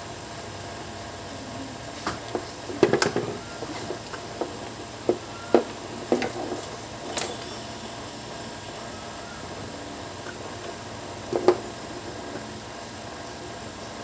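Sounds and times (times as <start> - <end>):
faint steady hum: 0.0 - 14.0
hard objects knocking and clicking: 2.1 - 7.5, 10.3 - 11.8.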